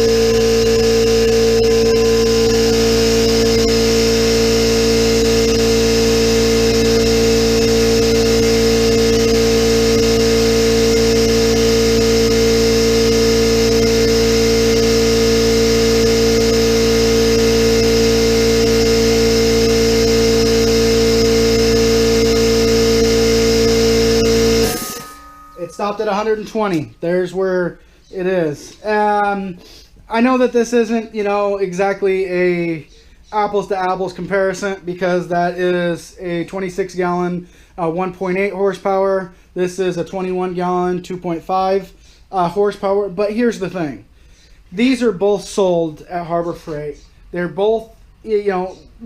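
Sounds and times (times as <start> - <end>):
air compressor running: 0.0 - 26.8
compressor pressure switch cutting out: 0.0 - 26.9.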